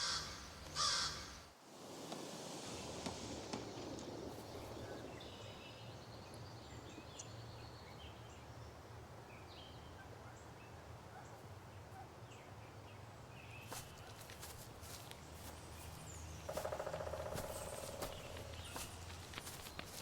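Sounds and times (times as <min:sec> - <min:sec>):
distant bird chirps: 0:13.4 - 0:20.0.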